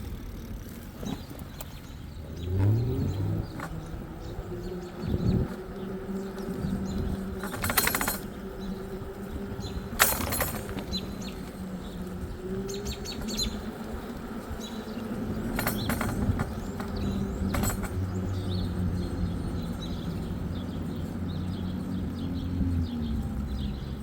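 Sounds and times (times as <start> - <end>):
birds chirping: 0.2 - 24.0
loud rattling bursts: 7.4 - 8.4, 9.6 - 11.4, 15.3 - 19.1.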